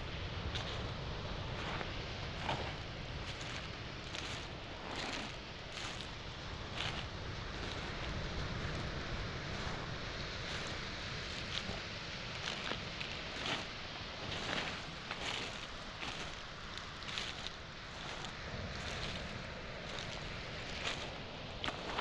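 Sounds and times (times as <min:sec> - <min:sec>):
waves washing on shore: 0:00.0 - 0:22.0
wind: 0:00.0 - 0:22.0
footsteps on pebbles: 0:00.4 - 0:22.0.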